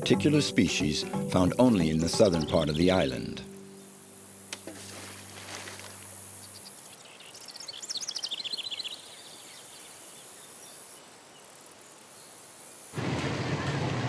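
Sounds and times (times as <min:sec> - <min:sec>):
bird singing falling notes: 0:00.0 - 0:09.4
high insect hiss: 0:01.8 - 0:13.0.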